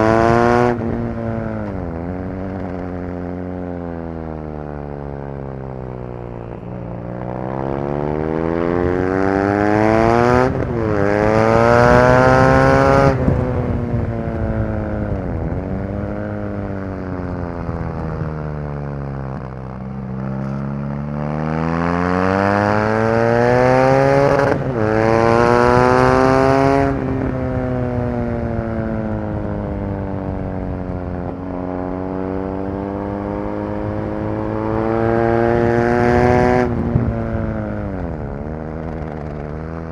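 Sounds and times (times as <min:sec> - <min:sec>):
motorcycle engine revving hard: 0:00.0 - 0:01.9, 0:07.2 - 0:16.7, 0:20.2 - 0:39.9.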